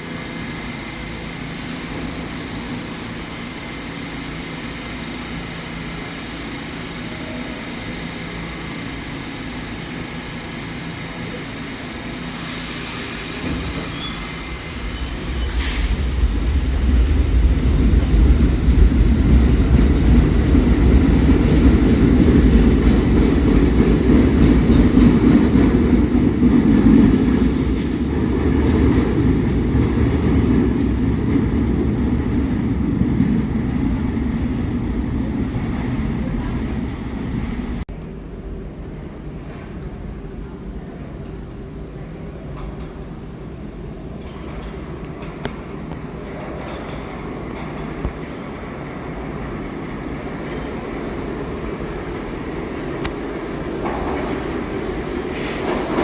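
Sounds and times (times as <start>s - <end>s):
subway train rumbling: 0.0s - 56.0s
brief hiss: 12.2s - 16.2s.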